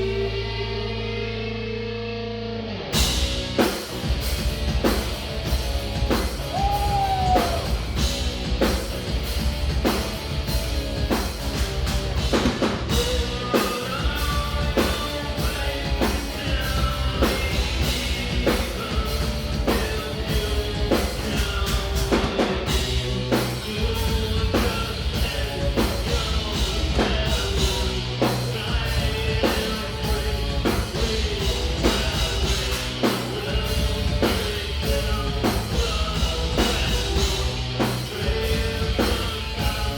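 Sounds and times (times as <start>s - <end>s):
heavy guitars and bass: 0.0s - 39.9s
live metal band playing: 0.0s - 39.9s
drum kit beat: 3.0s - 39.9s
person singing: 6.5s - 8.0s, 12.9s - 39.9s.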